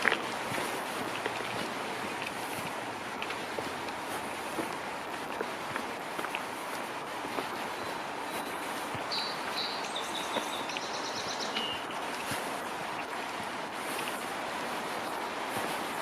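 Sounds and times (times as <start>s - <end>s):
faint footsteps: 0.0s - 16.0s
rushing wind or water: 0.0s - 16.0s
songbird chirping and trilling: 7.7s - 12.4s.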